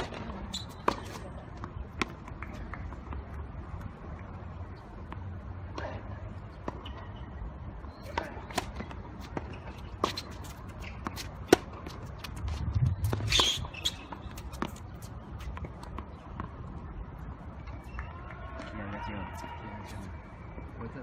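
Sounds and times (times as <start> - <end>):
tennis ball bouncing: 0.0 - 4.3, 8.0 - 16.6
shoes scuffing on court: 8.0 - 16.0
racket striking ball: 8.1 - 12.0.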